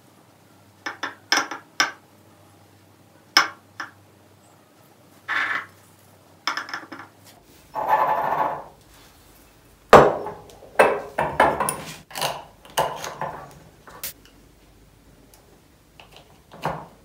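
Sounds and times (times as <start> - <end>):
jars knocking and clinking: 6.5 - 7.2.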